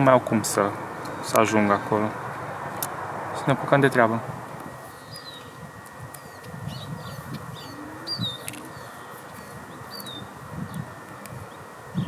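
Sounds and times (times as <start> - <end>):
steady background hiss: 0.0 - 12.0
small birds chirping: 4.8 - 12.0.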